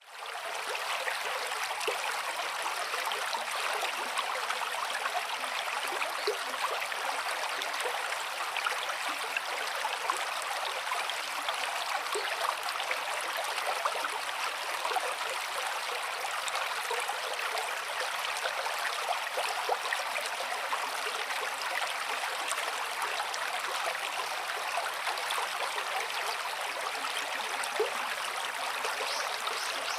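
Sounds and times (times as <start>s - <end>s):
stream water rushing: 17.8s - 29.9s.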